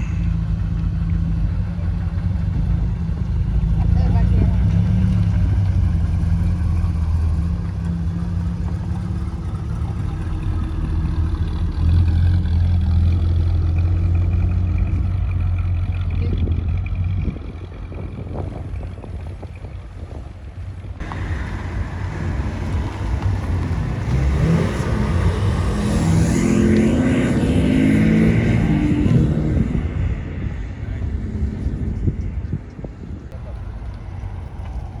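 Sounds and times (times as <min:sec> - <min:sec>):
car engine low rumble: 0:00.0 - 0:35.0
engine revving: 0:21.0 - 0:32.4.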